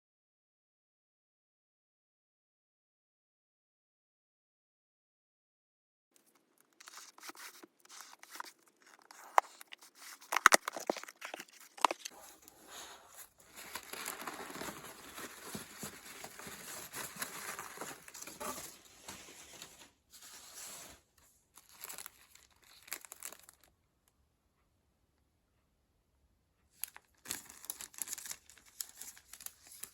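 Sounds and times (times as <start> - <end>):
packaging crinkling and rustling: 6.2 - 23.7, 26.8 - 29.9.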